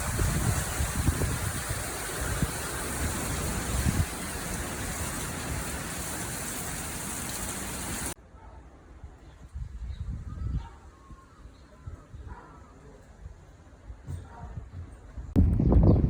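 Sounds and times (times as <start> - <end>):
heavy rain falling: 0.0 - 8.2.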